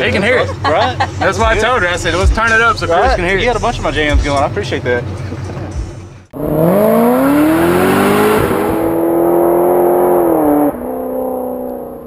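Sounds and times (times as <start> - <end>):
truck engine revving: 6.3 - 12.0.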